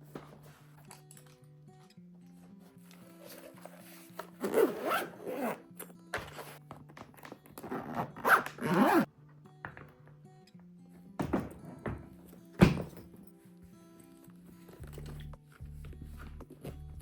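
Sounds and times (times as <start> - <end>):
soft background music: 0.0 - 17.0
rasping zip-like rubbing: 3.2 - 5.7, 7.7 - 9.1.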